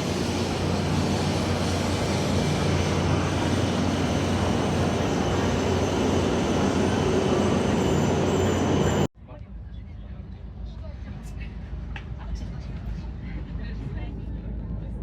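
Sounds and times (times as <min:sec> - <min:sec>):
train running noise rush: 0:00.0 - 0:09.1.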